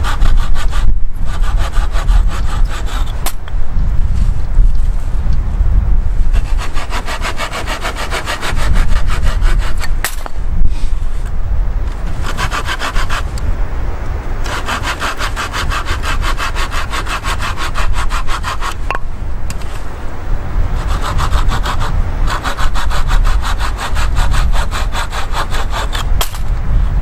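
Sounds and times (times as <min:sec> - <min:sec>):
hand saw cutting firewood: 0:00.0 - 0:03.4, 0:06.3 - 0:11.3, 0:11.9 - 0:13.5, 0:14.4 - 0:19.9, 0:20.7 - 0:26.6.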